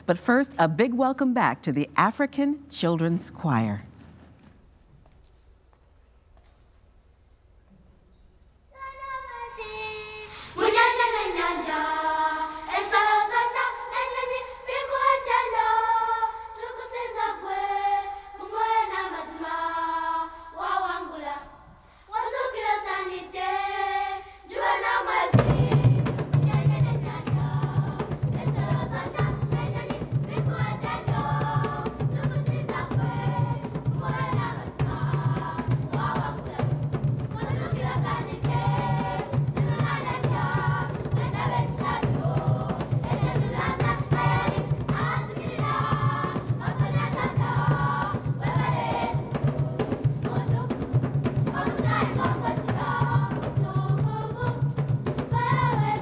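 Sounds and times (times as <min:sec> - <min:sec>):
children's choir singing: 0:08.8 - 0:56.0
steady drum beat: 0:24.6 - 0:56.0.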